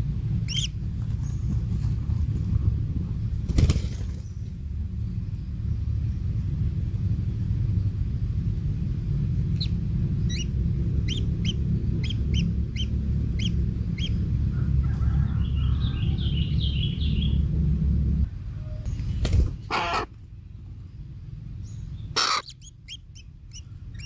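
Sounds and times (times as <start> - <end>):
low rumble: 0.0 - 24.0
kingfisher calling: 0.3 - 1.4, 9.4 - 14.8, 21.7 - 24.0.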